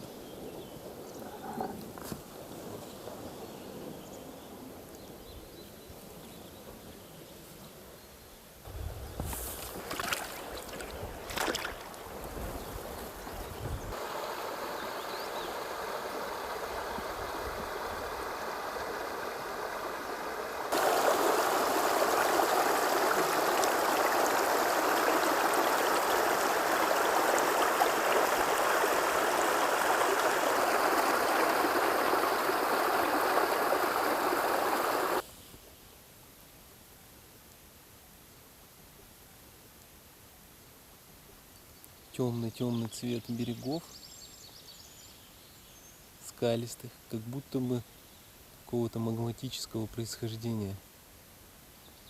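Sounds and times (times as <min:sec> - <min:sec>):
rushing river water: 0:08.7 - 0:35.2.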